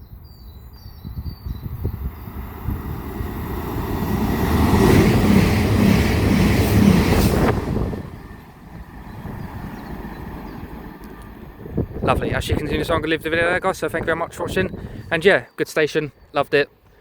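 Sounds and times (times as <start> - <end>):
wheels on rail: 1.4 - 12.1
train passing at speed: 1.4 - 14.0.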